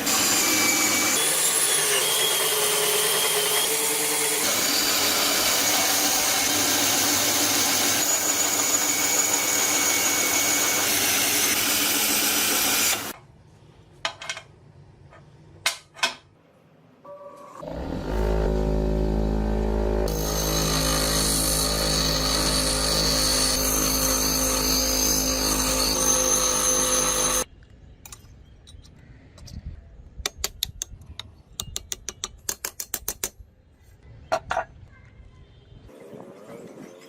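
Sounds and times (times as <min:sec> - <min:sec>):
power tool grinding with harsh hiss: 0:00.0 - 0:13.2, 0:17.6 - 0:27.5.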